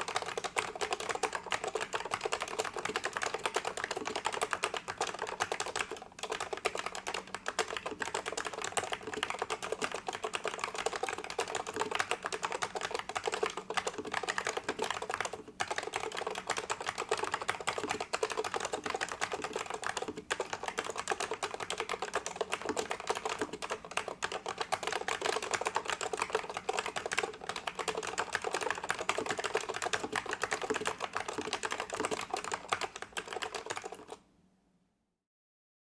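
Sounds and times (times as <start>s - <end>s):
fast keyboard typing: 0.0s - 34.2s.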